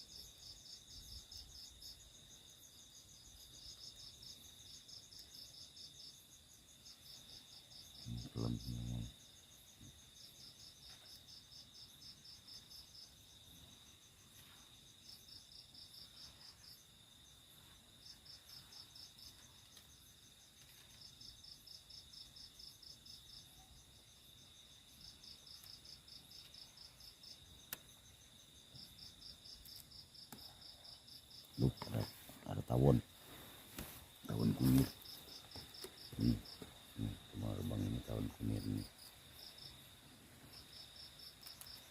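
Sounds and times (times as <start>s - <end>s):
cricket chirping: 0.0s - 41.9s
high-pitched insect drone: 36.0s - 39.5s.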